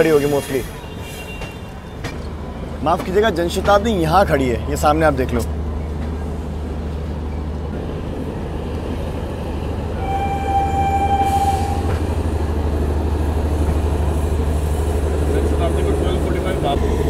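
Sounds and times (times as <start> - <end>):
train rumbling: 0.0 - 17.0
locomotive horn: 10.0 - 12.2.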